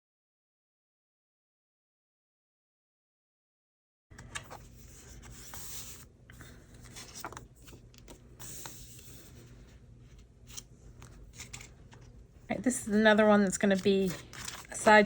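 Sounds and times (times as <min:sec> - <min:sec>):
paper rustling and sliding: 0:04.2 - 0:12.2, 0:13.5 - 0:15.0.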